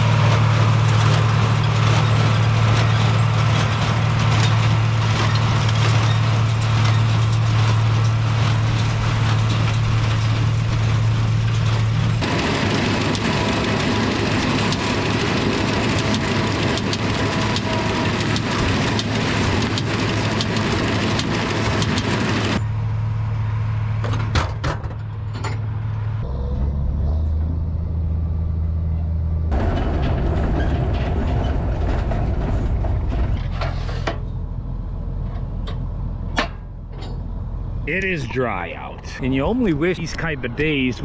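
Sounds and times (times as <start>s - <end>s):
machinery noise: 0.0s - 24.2s, 37.8s - 41.0s
tractor engines running: 0.0s - 41.0s.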